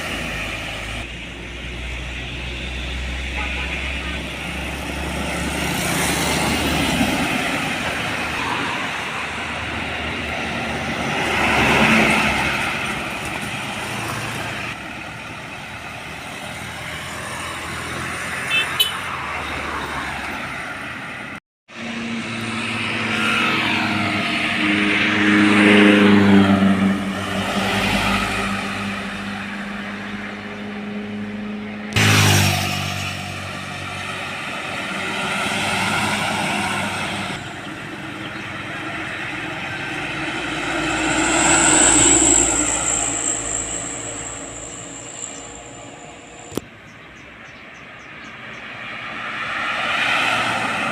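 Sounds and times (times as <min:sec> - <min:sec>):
vehicles driving past: 0:00.0 - 0:50.9
pitched engine drone: 0:37.0 - 0:46.7.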